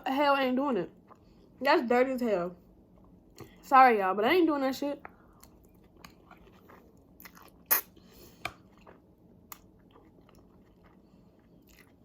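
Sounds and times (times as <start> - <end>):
person chewing food: 0.9 - 1.6, 5.0 - 12.0.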